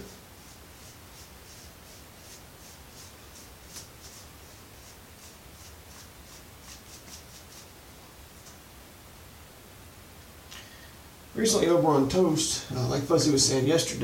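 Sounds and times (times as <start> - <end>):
shaving brush swirling lather: 0.0 - 7.8.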